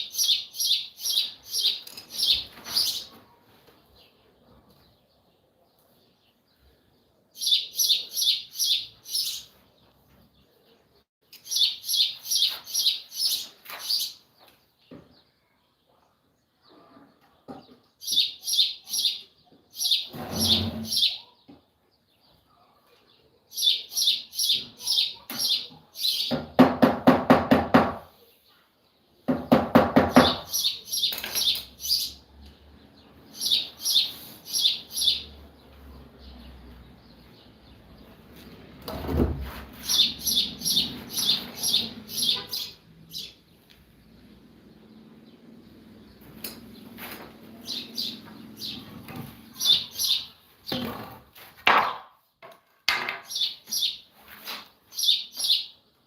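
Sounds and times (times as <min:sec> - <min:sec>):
bird chirping: 0:00.0 - 0:26.5, 0:28.2 - 0:51.0, 0:53.2 - 0:56.0
lower-pitched bird calls: 0:39.8 - 0:43.4.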